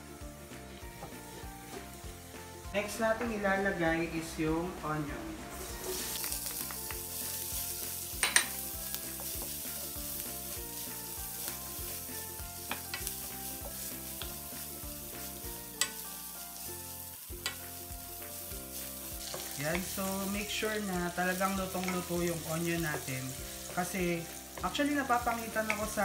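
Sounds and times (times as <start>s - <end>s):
onion sizzling in hot oil: 0.0s - 26.0s
spatula stirring in a wok: 5.5s - 26.0s.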